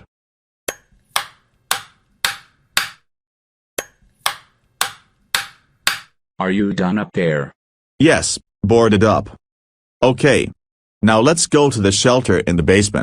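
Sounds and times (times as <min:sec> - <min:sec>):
hammer nailing wooden boards: 0:01.2 - 0:03.0, 0:04.2 - 0:06.1.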